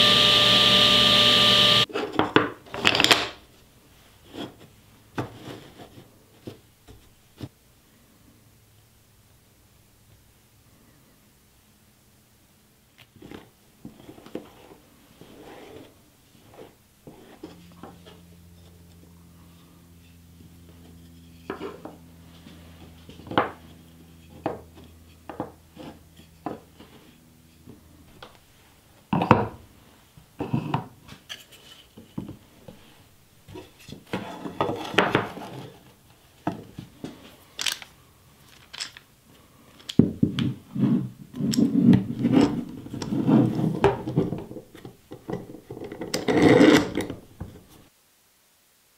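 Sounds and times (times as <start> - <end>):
wooden strips clicking and knocking: 2.2 - 3.4, 37.6 - 39.1
metal clamps clacking and rattling: 37.6 - 37.9, 38.5 - 39.1.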